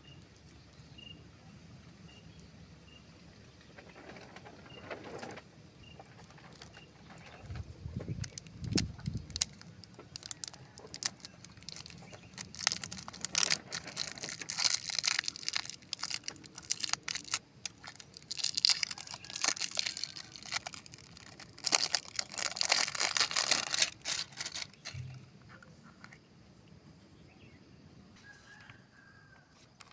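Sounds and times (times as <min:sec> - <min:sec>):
foliage rustling and crackling: 0:06.1 - 0:25.2.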